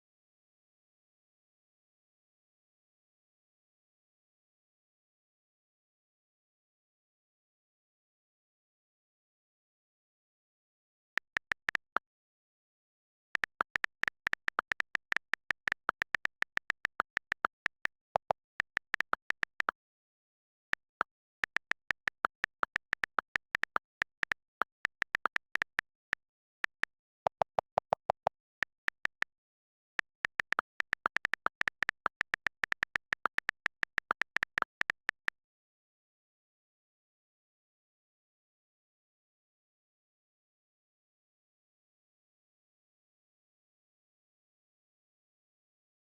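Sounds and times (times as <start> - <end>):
computer keyboard typing: 11.2 - 12.0, 13.4 - 19.7, 20.8 - 29.4, 30.0 - 35.3.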